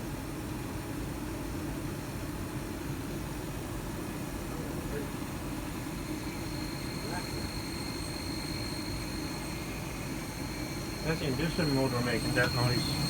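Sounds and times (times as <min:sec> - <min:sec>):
furnace motor humming: 0:05.1 - 0:13.0.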